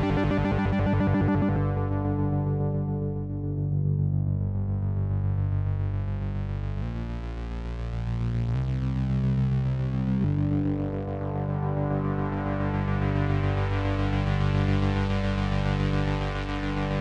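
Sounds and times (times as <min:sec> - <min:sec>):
rapid synth arpeggio: 0:00.0 - 0:03.2
sustained low synth notes: 0:00.0 - 0:17.0.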